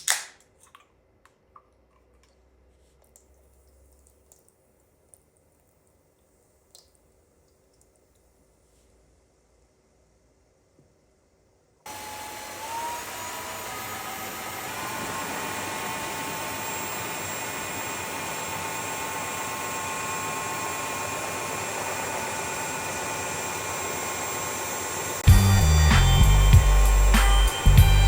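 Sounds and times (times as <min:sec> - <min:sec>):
cordless vacuum cleaner running: 0:11.9 - 0:28.0.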